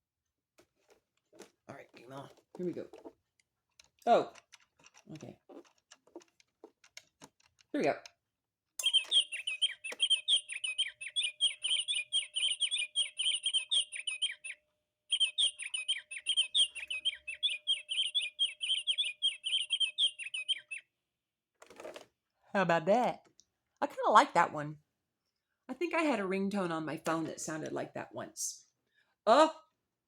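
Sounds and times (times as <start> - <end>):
finch song warble: 8.8 - 20.9.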